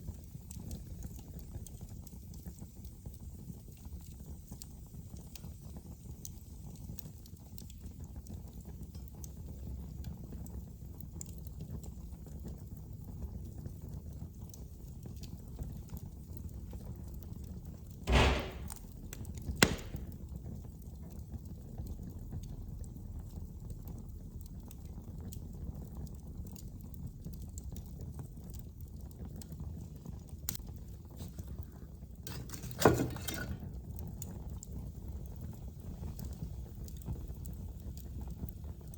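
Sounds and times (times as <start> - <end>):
fire burning in fireplace: 0.0 - 38.9
loud fire pops: 18.1 - 20.4.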